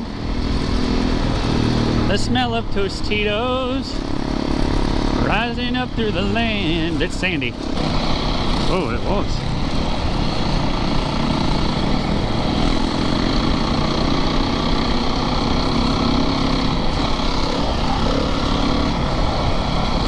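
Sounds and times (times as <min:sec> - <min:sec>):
constant rushing noise: 0:00.0 - 0:20.0
dirt bike engine running: 0:00.0 - 0:20.0.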